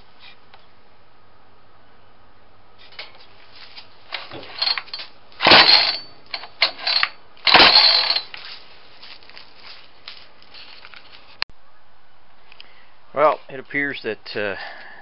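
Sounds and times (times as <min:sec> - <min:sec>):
recoil starter cord pulls: 0:04.1 - 0:08.3.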